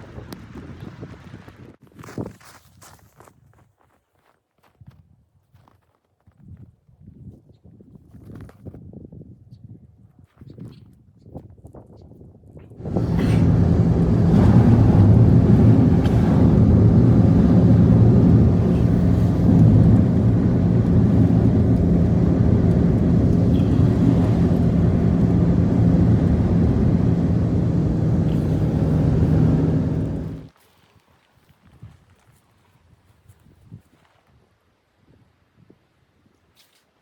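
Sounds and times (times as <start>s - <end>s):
motor humming: 12.8s - 30.5s.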